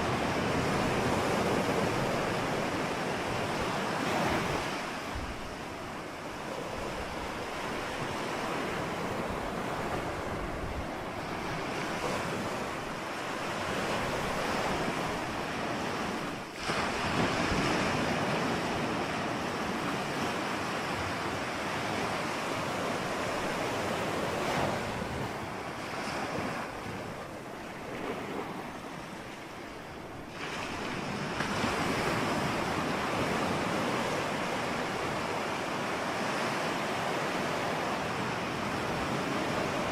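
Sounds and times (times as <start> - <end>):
ocean surf washing: 0.0 - 39.9.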